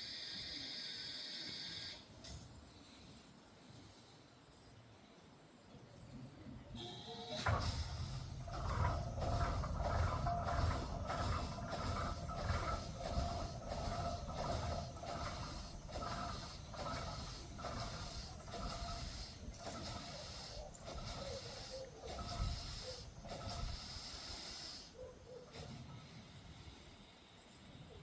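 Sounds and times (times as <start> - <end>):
steam locomotive exhaust beats: 6.8 - 28.0.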